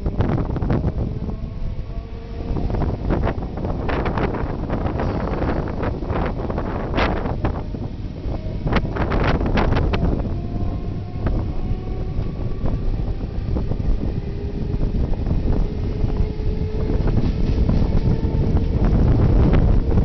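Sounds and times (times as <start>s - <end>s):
passenger train rumbling: 0.0s - 20.0s
wind buffeting microphone: 0.0s - 20.0s.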